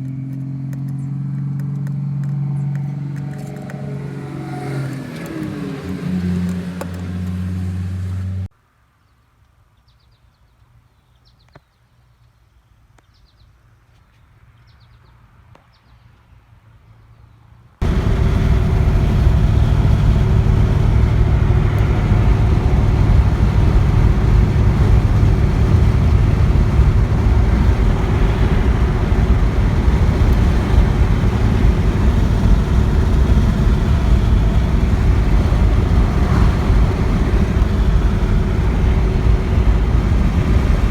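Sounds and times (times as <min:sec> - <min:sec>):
car engine running steadily: 0:17.8 - 0:40.9.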